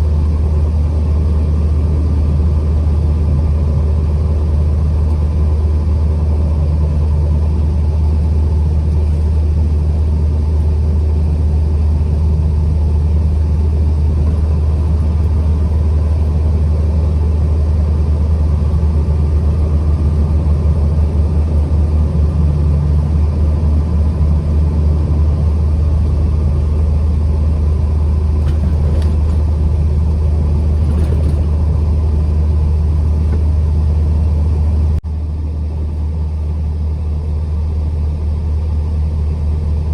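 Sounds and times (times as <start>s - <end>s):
road noise: 0.0s - 39.9s
truck engine rumble: 0.0s - 39.9s.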